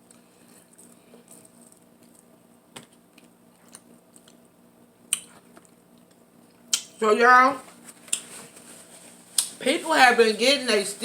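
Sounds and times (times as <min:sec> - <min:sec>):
person chewing food: 0:00.0 - 0:06.2.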